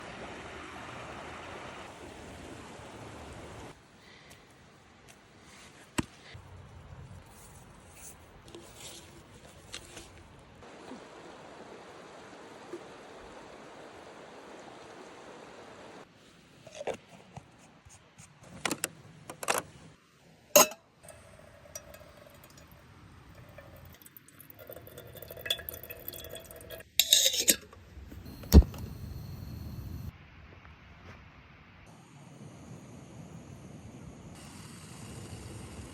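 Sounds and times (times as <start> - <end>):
faint steady hiss: 19.7 - 35.9
camp cookware clinking: 20.6 - 30.1.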